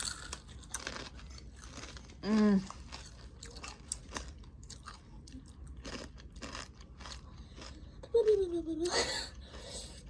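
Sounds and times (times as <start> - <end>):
crunching chips: 0.0 - 7.8.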